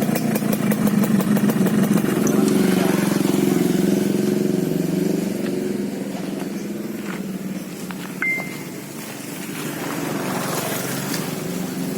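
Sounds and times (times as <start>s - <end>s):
motorcycle engine idling: 0.0s - 11.9s
high-pitched tone: 8.2s - 8.9s.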